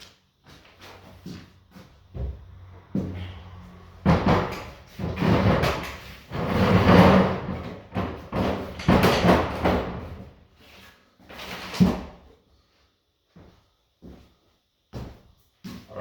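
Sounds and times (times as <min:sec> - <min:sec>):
table dragged across floor: 0:02.6 - 0:07.5.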